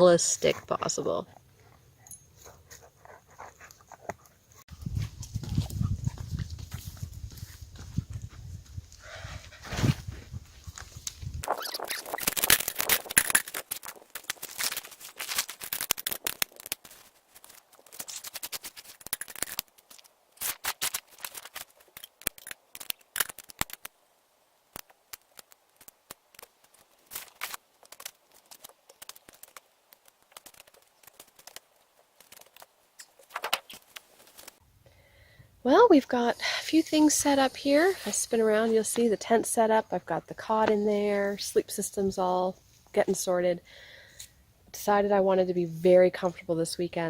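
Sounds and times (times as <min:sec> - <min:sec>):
rustling of camping gear: 0:01.4 - 0:23.8, 0:24.9 - 0:34.6.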